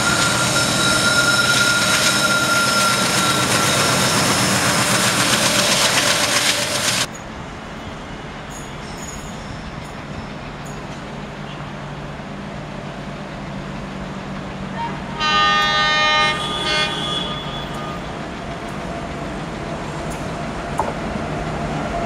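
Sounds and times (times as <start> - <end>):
locomotive horn blowing: 0.0 - 4.2, 14.8 - 18.2
train running: 0.0 - 22.0.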